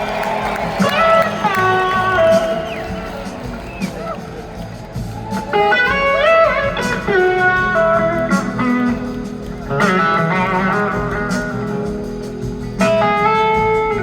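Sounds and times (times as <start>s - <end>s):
bass and drums: 0.0s - 14.0s
electric slide guitar lead: 5.3s - 14.0s.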